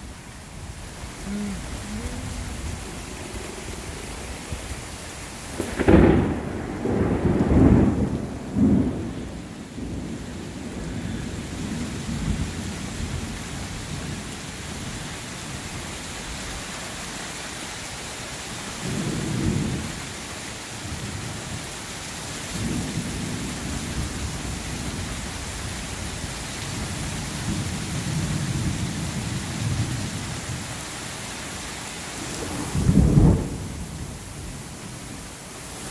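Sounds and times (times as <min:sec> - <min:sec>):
steady rain: 0:00.0 - 0:35.9
thunder clap and rumbling: 0:00.6 - 0:14.3, 0:32.4 - 0:34.2.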